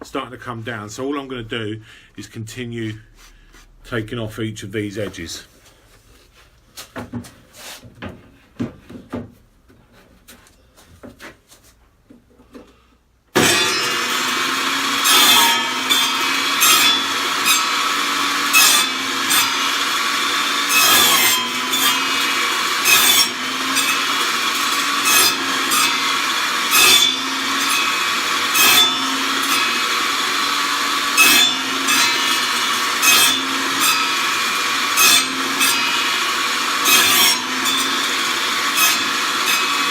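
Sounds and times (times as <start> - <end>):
knocks of wood being handled: 6.7 - 12.8
table saw cutting a board: 13.4 - 39.9.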